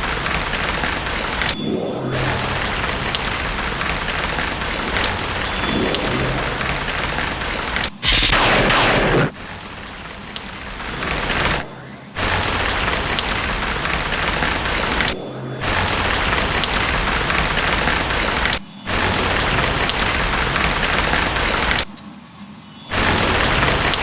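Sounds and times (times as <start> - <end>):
heavy rain: 0.0 - 21.9, 22.9 - 24.0
loud thunderclap: 2.1 - 9.6.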